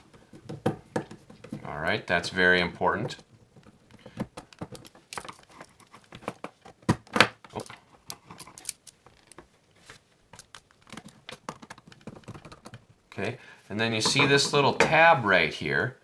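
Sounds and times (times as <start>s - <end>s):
outlet clacking on wood: 10.3s - 12.9s.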